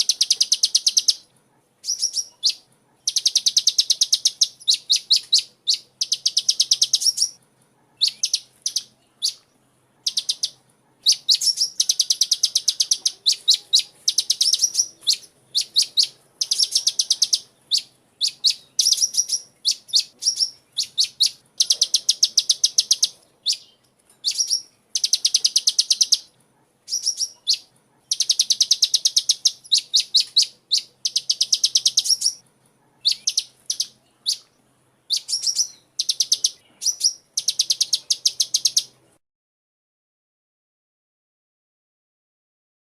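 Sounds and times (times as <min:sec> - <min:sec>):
bird trilling high chips: 0:01.8 - 0:07.4, 0:10.0 - 0:26.3, 0:26.9 - 0:32.4, 0:33.0 - 0:34.5, 0:35.1 - 0:38.9.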